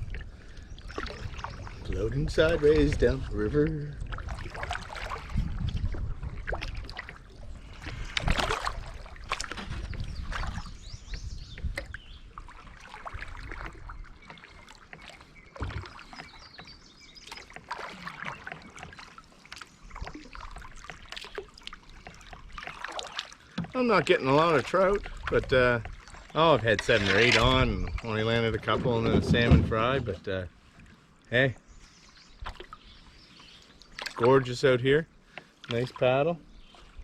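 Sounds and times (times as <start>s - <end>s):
water splashing and dripping: 0.0s - 10.8s, 11.6s - 31.0s, 32.4s - 32.9s, 33.7s - 37.0s
wind rumble on microphone: 0.0s - 14.0s, 26.8s - 30.4s
sharp splashes or knocks: 7.8s - 10.7s.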